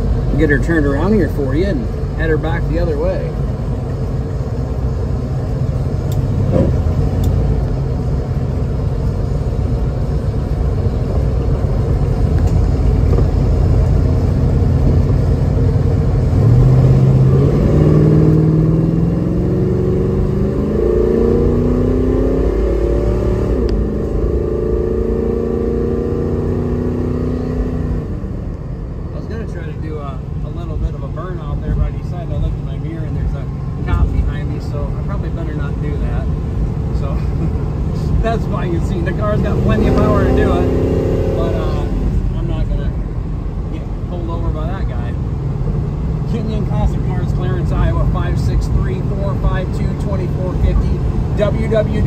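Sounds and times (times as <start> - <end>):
engine revving as car accelerates: 0.0 - 29.6, 30.2 - 52.0
car engine rumble from inside: 0.0 - 52.0
road noise: 0.0 - 52.0.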